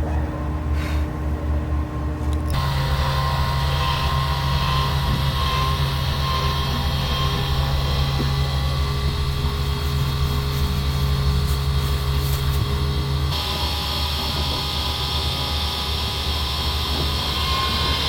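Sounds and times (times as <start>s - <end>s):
vehicle engine drone: 0.0s - 18.0s
road and wind hiss: 7.0s - 17.2s.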